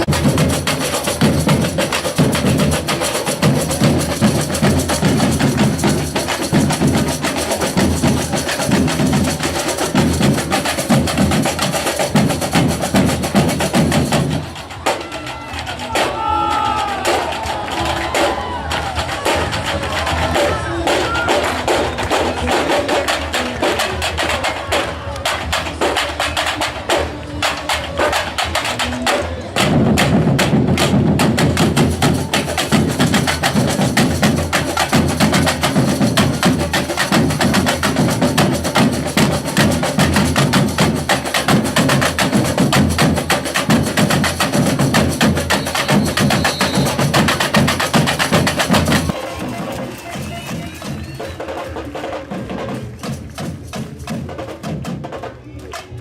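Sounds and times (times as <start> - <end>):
samba percussion ensemble: 0.0 - 56.0
heavy bass drums: 29.6 - 51.3.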